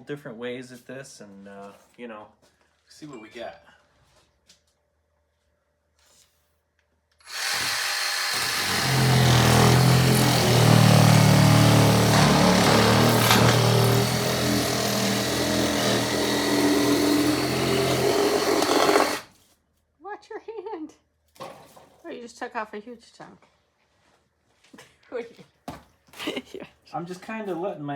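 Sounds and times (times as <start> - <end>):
reciprocating saw cutting foam: 7.2 - 19.4.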